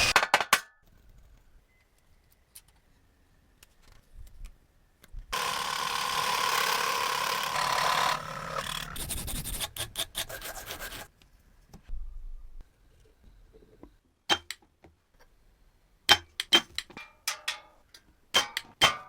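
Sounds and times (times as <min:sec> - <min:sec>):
metal rasping: 0:05.4 - 0:11.1
quick file strokes on metal: 0:08.7 - 0:11.1.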